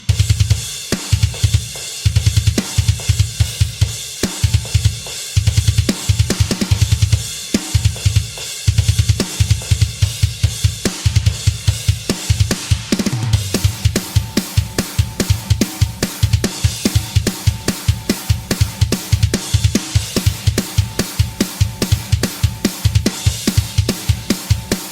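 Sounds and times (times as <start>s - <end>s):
cymbals and hi-hat: 0.0s - 24.9s
bass drum strokes: 7.8s - 24.8s.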